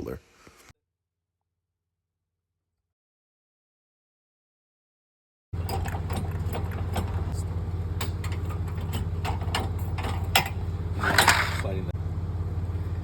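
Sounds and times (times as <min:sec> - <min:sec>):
car engine idling: 0:05.6 - 0:13.0.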